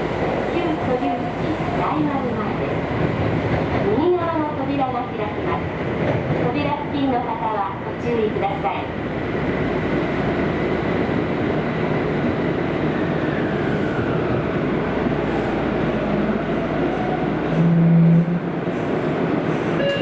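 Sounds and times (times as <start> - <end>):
subway train running noise: 0.0 - 20.0.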